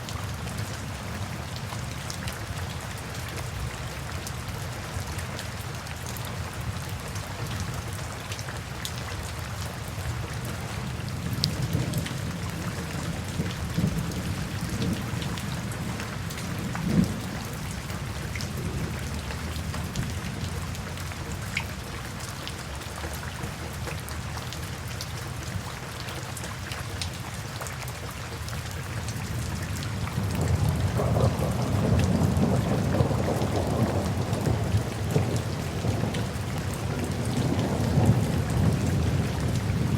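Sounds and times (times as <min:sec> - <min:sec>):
steady rain: 0:00.0 - 0:39.9
low rolls of thunder: 0:10.9 - 0:20.8, 0:29.9 - 0:39.9.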